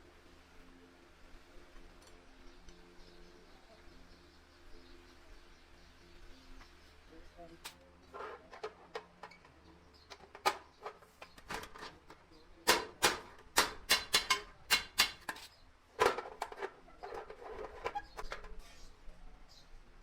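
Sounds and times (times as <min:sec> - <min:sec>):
hammer striking sheet metal: 0:12.7 - 0:15.4.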